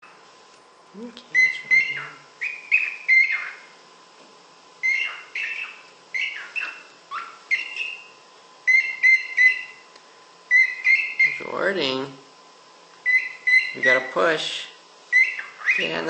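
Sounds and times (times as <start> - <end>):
cockatiel chirping: 1.4 - 3.7, 4.8 - 9.8, 10.5 - 11.5, 13.0 - 14.2, 15.1 - 16.0.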